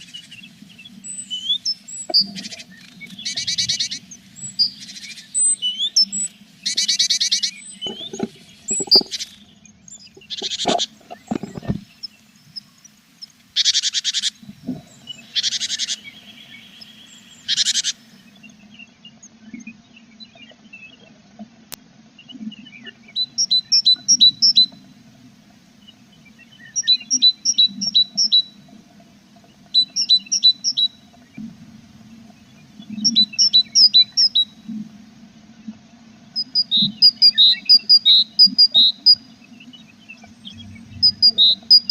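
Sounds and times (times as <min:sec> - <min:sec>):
tits calling: 0:00.0 - 0:18.7, 0:22.5 - 0:25.0, 0:25.6 - 0:28.8, 0:29.4 - 0:34.8, 0:35.6 - 0:41.9
low steady hum: 0:14.4 - 0:41.9.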